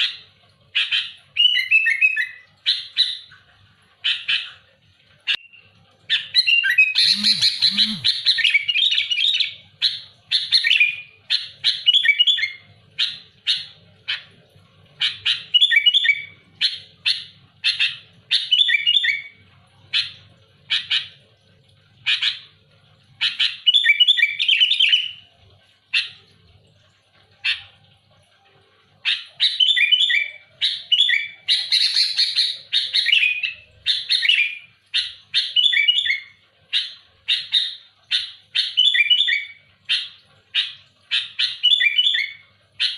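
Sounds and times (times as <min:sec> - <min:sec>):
bird singing chirps and chatter: 0:05.3 - 0:14.3, 0:29.0 - 0:42.9.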